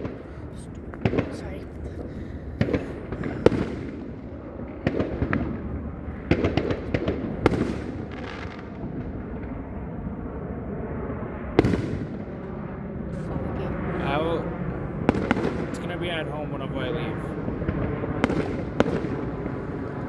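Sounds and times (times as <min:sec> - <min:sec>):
distant fireworks rumble: 0:00.0 - 0:20.0
fireworks bangs and crackles: 0:00.0 - 0:20.0.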